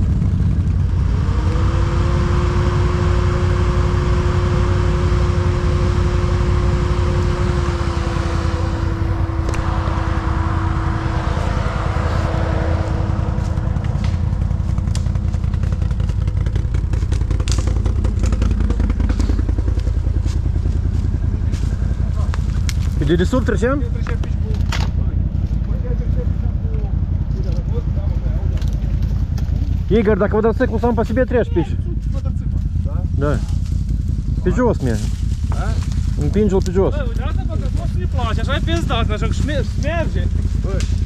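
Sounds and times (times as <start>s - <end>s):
quad bike engine revving high: 0.0s - 41.0s
knocks and cracks: 13.9s - 19.8s.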